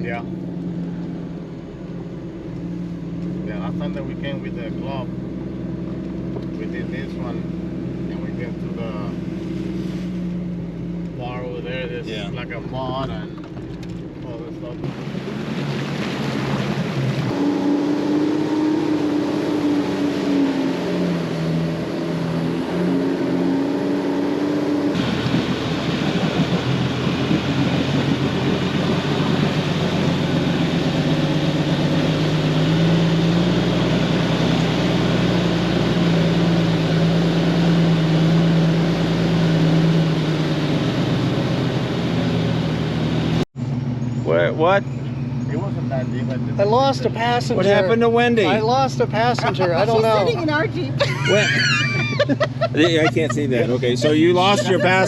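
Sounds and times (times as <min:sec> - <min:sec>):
car engine under load: 0:00.0 - 0:55.0
rushing water: 0:14.8 - 0:41.2.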